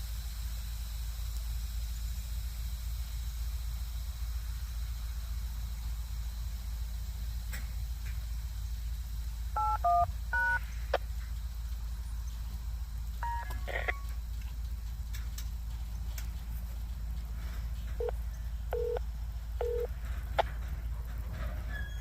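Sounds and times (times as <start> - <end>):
low hum: 0.0 - 22.0
touch-tone beeps: 9.6 - 10.6, 13.2 - 14.0, 18.8 - 19.0, 19.6 - 19.9.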